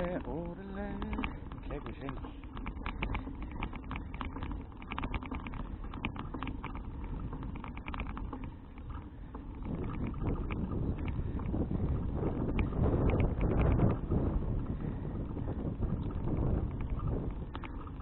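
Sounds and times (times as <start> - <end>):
bicycle clicks and rattles: 0.0 - 18.0
low rumble of tyres on road: 0.0 - 18.0
wind buffeting microphone: 0.0 - 18.0.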